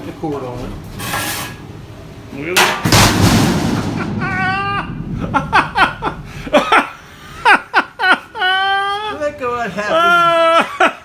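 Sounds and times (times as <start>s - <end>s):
hearty laughter: 4.0s - 9.1s, 9.7s - 11.0s.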